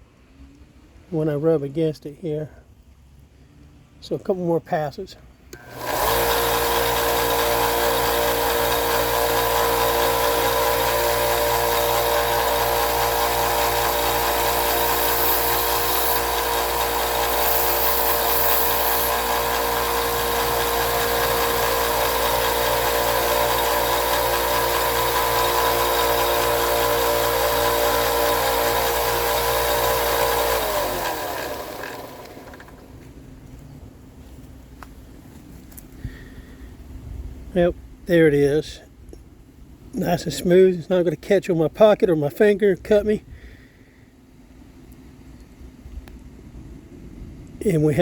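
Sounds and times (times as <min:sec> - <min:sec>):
electric grinder grinding blade: 0:05.6 - 0:33.0.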